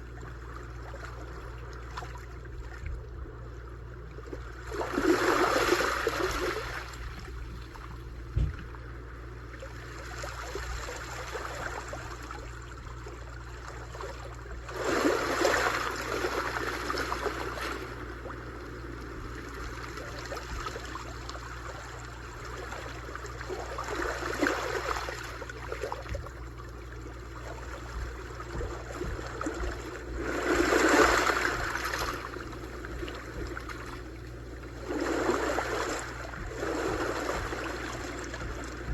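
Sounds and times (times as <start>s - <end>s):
brief knock: 8.3s - 8.7s
sea waves washing onto shore: 27.3s - 38.9s.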